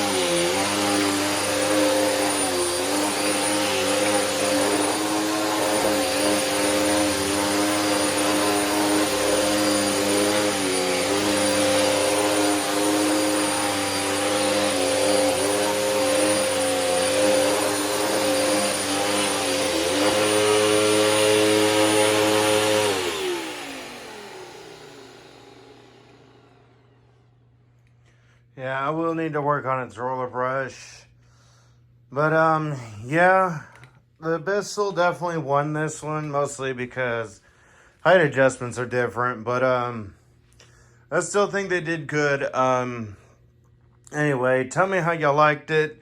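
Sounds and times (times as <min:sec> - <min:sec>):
vacuum cleaner winding down: 0:00.0 - 0:27.5
vacuum cleaner running: 0:00.0 - 0:27.7.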